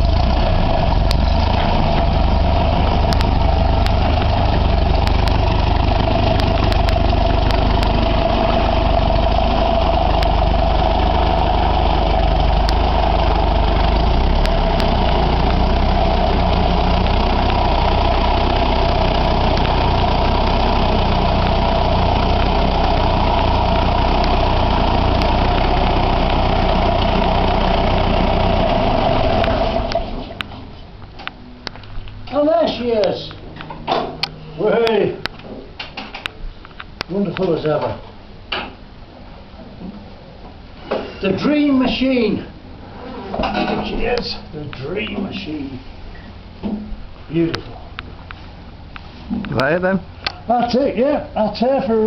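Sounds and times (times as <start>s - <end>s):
tractor diesel engine running: 0.0s - 36.6s.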